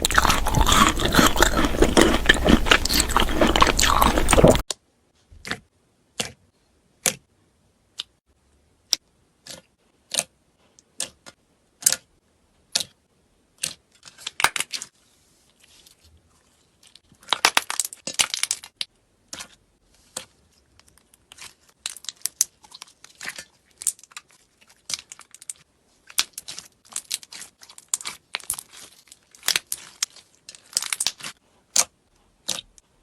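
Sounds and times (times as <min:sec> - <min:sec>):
crisp food being chewed: 0:00.0 - 0:04.6, 0:15.6 - 0:32.8.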